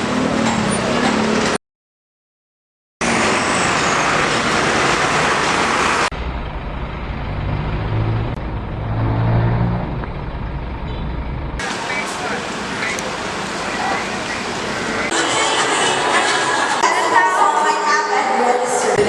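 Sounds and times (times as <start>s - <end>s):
road traffic rushing: 0.0s - 1.6s, 3.0s - 17.9s
low engine rumble: 4.4s - 15.2s.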